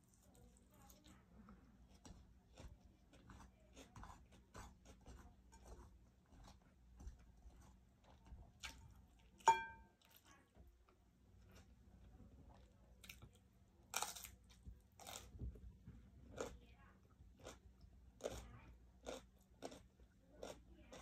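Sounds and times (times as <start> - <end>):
fingers picking at food: 0.0 - 15.6, 18.2 - 21.0
chewing and mouth clicks: 1.9 - 10.4, 11.4 - 15.3, 17.4 - 21.0
ringing clink: 9.5 - 9.9.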